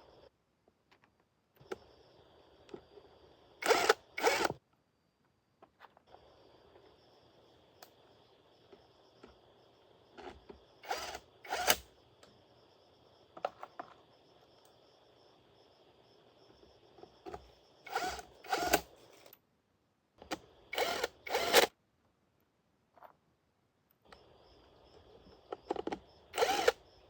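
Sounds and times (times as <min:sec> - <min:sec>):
faint high whine: 0:00.0 - 0:21.7, 0:23.9 - 0:27.0
power tool bursts: 0:03.6 - 0:04.6, 0:10.8 - 0:11.9, 0:17.9 - 0:18.9, 0:20.7 - 0:21.7, 0:26.3 - 0:26.8.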